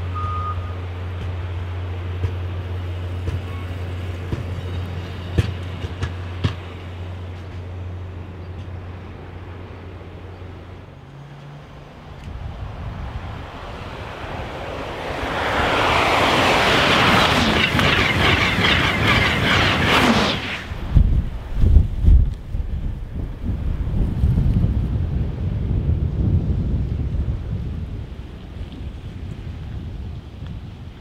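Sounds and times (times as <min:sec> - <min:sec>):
train passing at speed: 0:00.0 - 0:31.0
wheels clicking over rails: 0:15.7 - 0:20.3.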